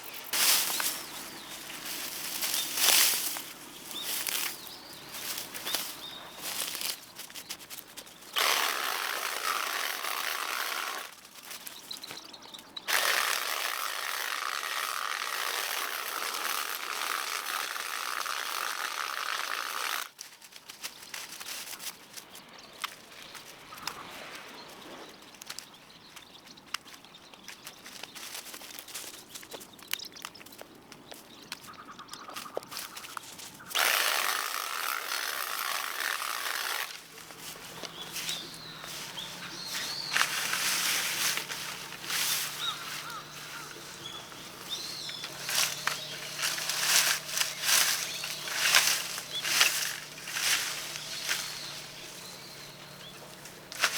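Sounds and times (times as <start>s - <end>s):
power hedge trimmer cutting: 0.4s - 6.9s, 8.3s - 11.1s, 12.9s - 20.1s, 33.7s - 53.9s.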